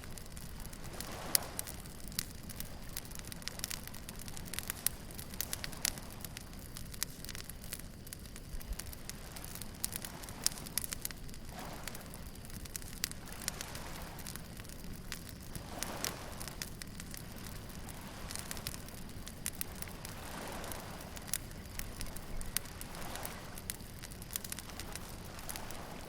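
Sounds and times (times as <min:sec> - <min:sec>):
wood bonfire crackling and popping: 0:00.0 - 0:26.0.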